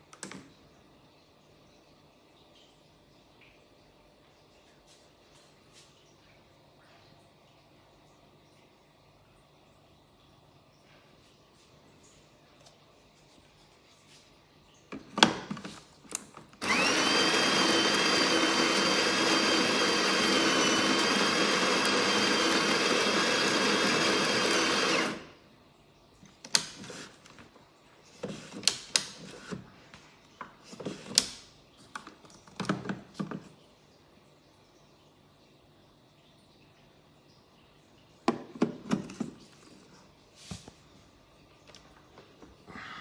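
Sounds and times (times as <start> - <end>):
coffee grinder grinding beans: 16.6 - 25.3
clicks and knocks of handling: 30.3 - 33.6, 38.3 - 39.8.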